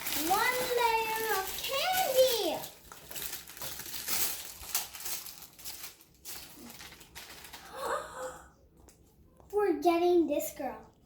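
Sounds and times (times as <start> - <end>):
plastic packaging crinkling: 0.0 - 7.8
child murmuring: 7.6 - 8.6.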